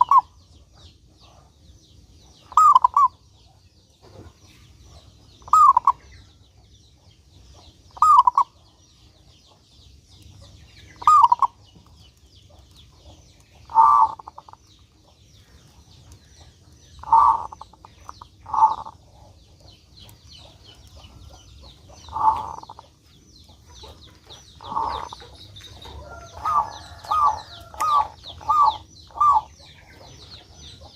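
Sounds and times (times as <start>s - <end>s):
dove cooing: 2.5s - 3.2s, 5.4s - 6.0s, 8.0s - 8.6s, 11.0s - 11.6s, 13.7s - 14.6s, 17.0s - 19.4s, 22.1s - 22.9s, 24.6s - 30.0s.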